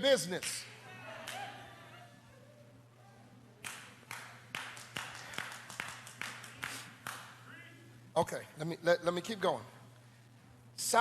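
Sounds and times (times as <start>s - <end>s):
scattered hand claps: 3.6s - 7.4s.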